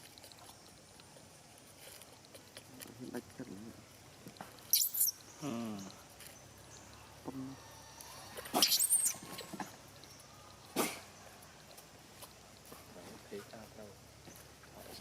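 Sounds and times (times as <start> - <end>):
baby macaque squealing: 4.7 - 5.2, 8.5 - 9.5.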